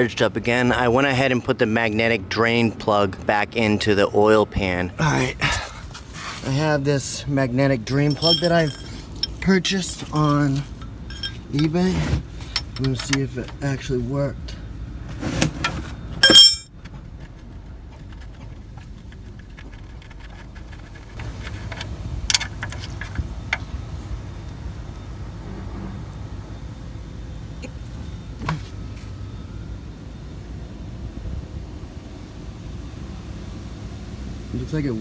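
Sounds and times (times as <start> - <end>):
steady low rumble: 4.9 - 15.1, 20.6 - 34.8
hand tools clinking on metal: 7.8 - 13.7, 16.2 - 16.7.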